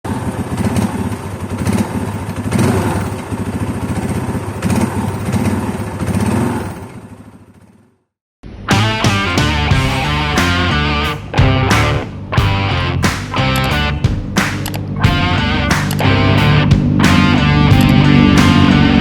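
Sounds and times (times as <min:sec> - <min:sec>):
motorcycle engine thumping: 0:00.1 - 0:07.8, 0:08.7 - 0:19.0
music: 0:08.7 - 0:19.0.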